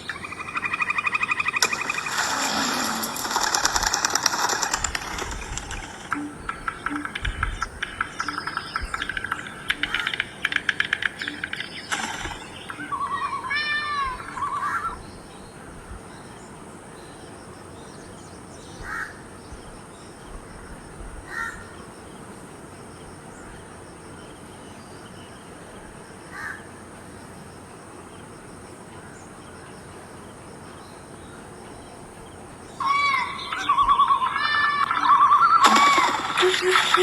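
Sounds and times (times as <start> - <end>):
steady background hiss: 0.0 - 37.0
crows cawing: 6.1 - 15.0, 18.8 - 19.2, 21.3 - 21.7, 26.3 - 26.7, 32.8 - 36.4.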